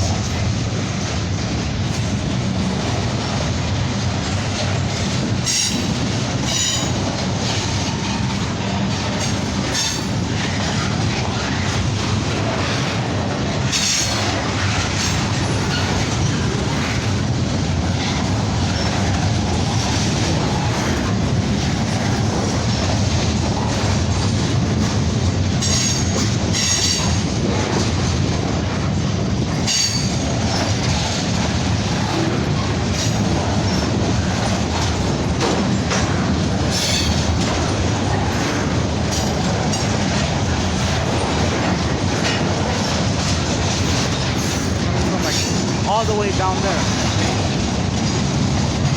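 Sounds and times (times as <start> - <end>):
freight train wheels clicking: 0.0 - 48.9.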